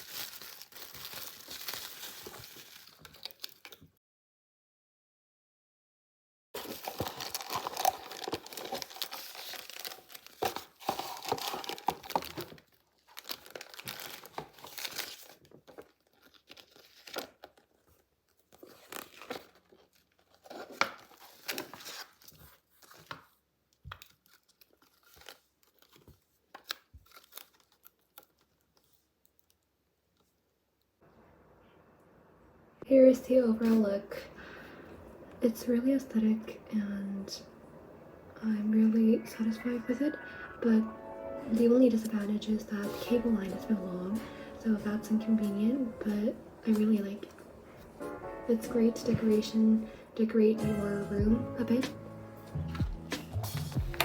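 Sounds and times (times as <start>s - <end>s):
plastic and paper wrapping crinkling: 0.0s - 4.0s, 6.6s - 30.4s, 41.5s - 48.1s.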